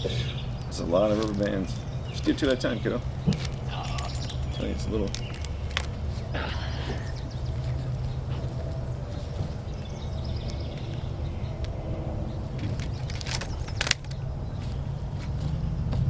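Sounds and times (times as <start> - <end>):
steady low rumble: 0.0 - 16.0
rubber bands snapping: 0.6 - 6.4, 12.6 - 14.2
rubber bands stretching: 1.0 - 7.7, 12.6 - 14.2.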